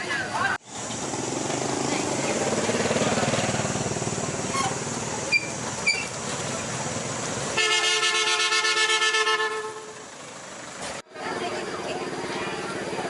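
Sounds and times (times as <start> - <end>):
vehicle engine running: 0.1 - 13.0
buzzy vehicle horn honk: 7.6 - 10.0.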